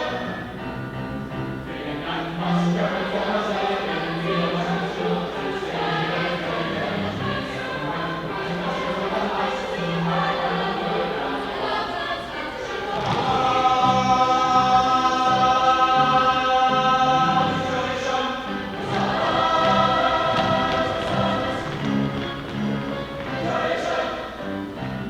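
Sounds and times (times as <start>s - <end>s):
ensemble singing: 0.0s - 25.0s
instrumental accompaniment: 12.6s - 25.0s.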